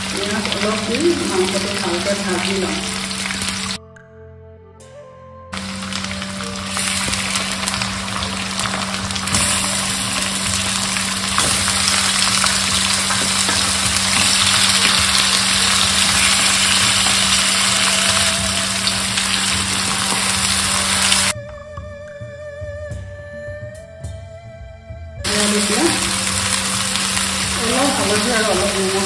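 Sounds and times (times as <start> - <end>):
food sizzling in hot oil: 0.0 - 3.8, 5.6 - 21.4, 25.3 - 29.0
wooden spatula stirring: 5.6 - 20.6.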